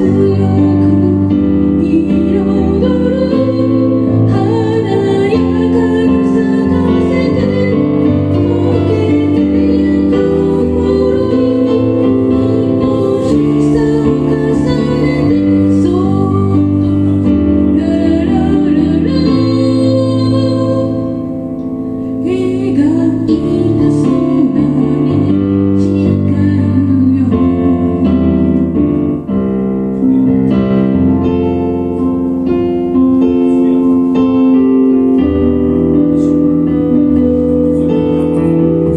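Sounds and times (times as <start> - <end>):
woman singing: 0.0 - 21.4, 22.1 - 28.6
keyboard chords: 0.0 - 38.9.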